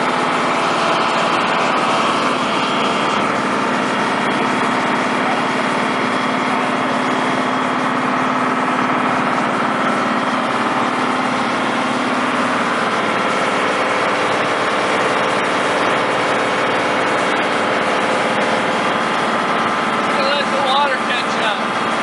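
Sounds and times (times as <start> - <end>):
heavy machinery engine running: 0.0 - 22.0.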